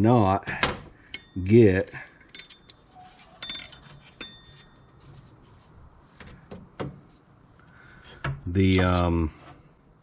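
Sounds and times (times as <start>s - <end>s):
light metallic clinks and knocks: 1.0s - 5.1s.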